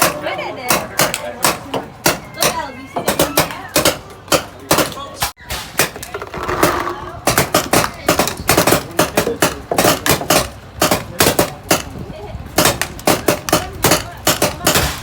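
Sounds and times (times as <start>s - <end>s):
murmur of voices: 0.0s - 15.0s
sharp clacks and knocks: 5.7s - 12.0s, 12.6s - 15.0s.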